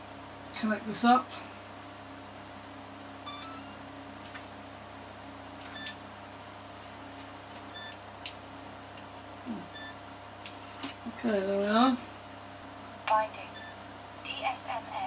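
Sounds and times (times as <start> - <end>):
room fan humming: 0.0 - 15.0
motor beeping tones: 3.2 - 3.8, 5.7 - 6.0, 7.7 - 8.0, 9.6 - 10.0, 13.4 - 13.8.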